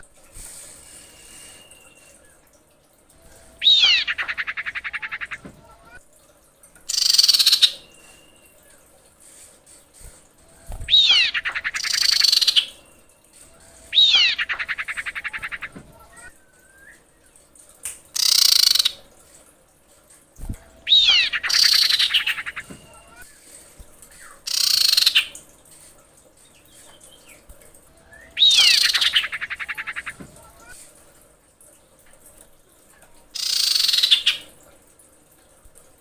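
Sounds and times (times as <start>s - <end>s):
bird rattling trills: 3.2s - 6.0s, 6.9s - 8.6s, 10.0s - 16.8s, 18.1s - 19.0s, 20.6s - 30.8s, 33.4s - 34.5s.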